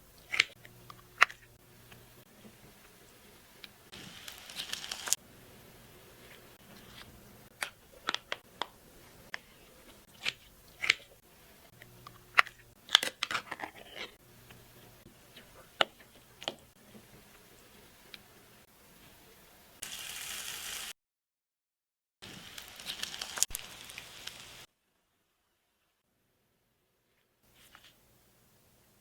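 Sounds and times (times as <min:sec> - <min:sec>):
sharp crinkles and clicks: 0:03.6 - 0:05.2, 0:22.5 - 0:24.5.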